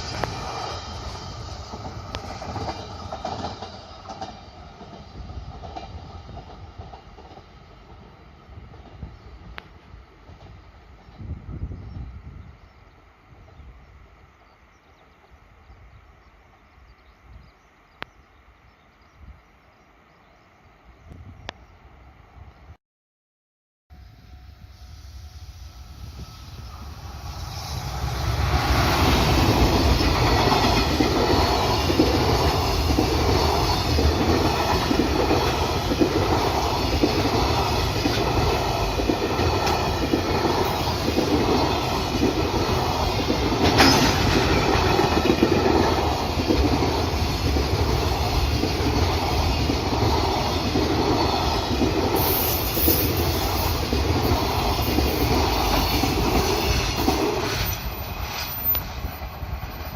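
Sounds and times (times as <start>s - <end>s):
freight train wheels clattering: 0.0s - 9.6s, 27.7s - 59.9s.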